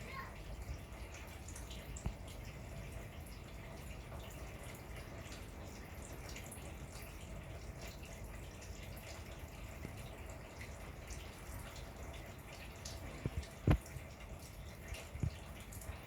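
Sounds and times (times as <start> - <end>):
faint ticks and taps: 1.5 - 2.4, 12.6 - 16.0.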